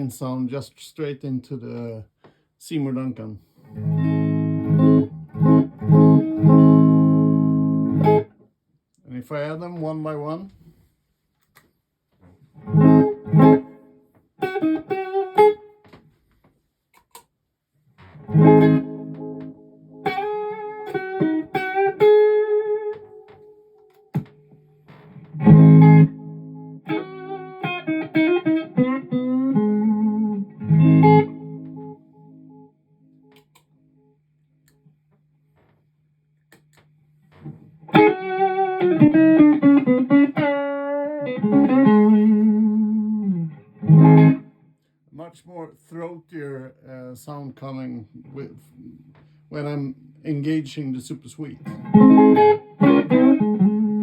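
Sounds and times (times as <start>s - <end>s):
electric guitar playing: 3.7s - 8.4s, 12.5s - 15.9s, 18.1s - 33.4s, 37.3s - 44.6s, 51.5s - 54.0s.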